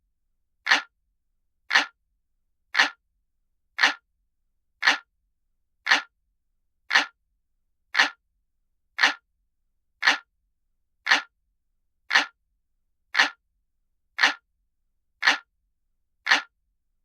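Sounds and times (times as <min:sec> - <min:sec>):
clock ticking: 0:00.7 - 0:00.9, 0:01.7 - 0:02.0, 0:02.8 - 0:03.0, 0:03.8 - 0:04.0, 0:04.8 - 0:05.1, 0:05.9 - 0:06.1, 0:06.9 - 0:07.2, 0:08.0 - 0:08.2, 0:09.0 - 0:09.2, 0:10.0 - 0:10.3, 0:11.1 - 0:11.3, 0:12.1 - 0:12.4, 0:13.2 - 0:13.4, 0:14.2 - 0:14.4, 0:15.2 - 0:15.5, 0:16.3 - 0:16.5.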